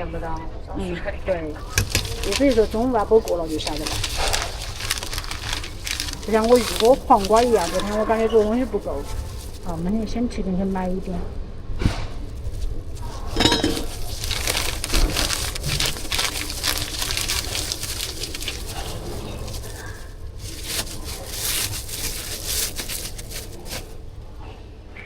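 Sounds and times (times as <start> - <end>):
rustling: 1.2 - 24.5
utensils clattering and clinking: 1.6 - 9.4, 13.1 - 23.9.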